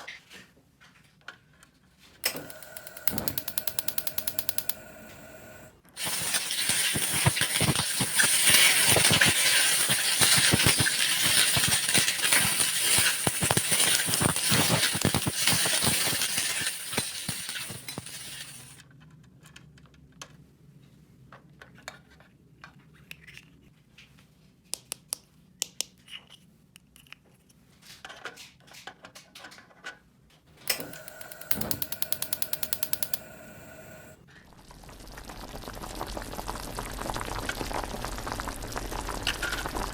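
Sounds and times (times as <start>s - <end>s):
plastic toy pieces rattling: 6.0s - 18.8s.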